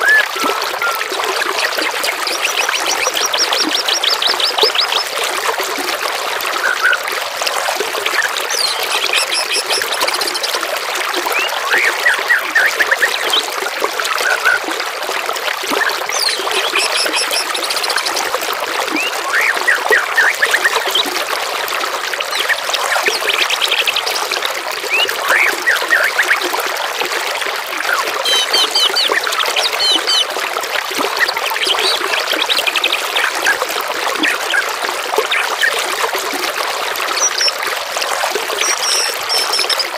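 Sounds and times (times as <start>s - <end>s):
water trickling: 0.0s - 39.9s
songbirds calling: 1.6s - 5.2s, 8.1s - 10.7s, 11.3s - 13.5s, 15.8s - 18.3s, 18.9s - 21.1s, 22.2s - 26.5s, 27.8s - 30.3s, 37.1s - 37.6s, 38.6s - 39.9s.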